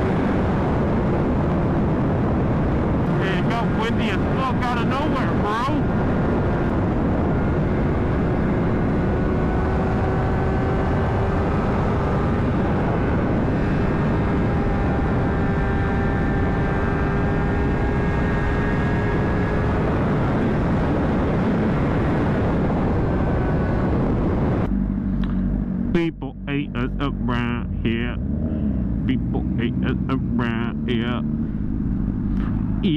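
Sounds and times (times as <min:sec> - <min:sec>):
wind rush on microphone: 0:00.0 - 0:26.0
motorcycle engine cruising: 0:05.8 - 0:32.9.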